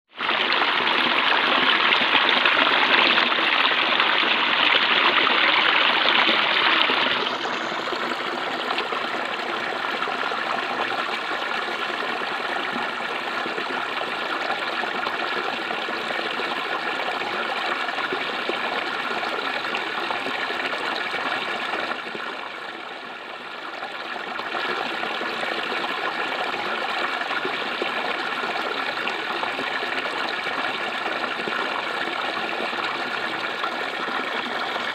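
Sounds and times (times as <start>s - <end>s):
water flowing and babbling: 0.1s - 34.9s.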